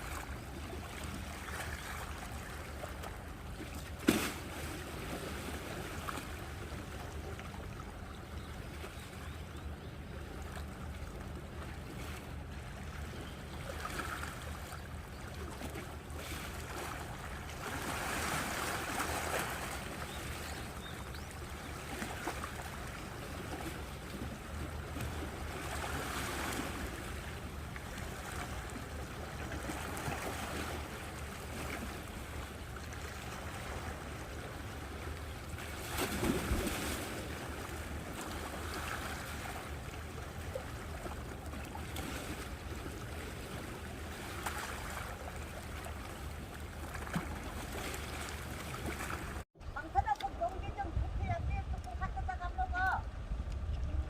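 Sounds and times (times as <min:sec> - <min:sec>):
sea waves washing ashore: 0:00.0 - 0:08.0, 0:15.4 - 0:49.5
wind rumbling on microphone: 0:49.2 - 0:54.0.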